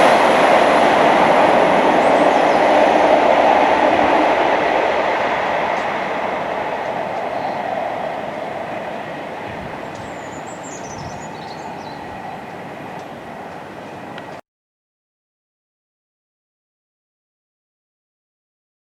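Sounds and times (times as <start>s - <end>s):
train rumbling past: 0.0s - 14.4s.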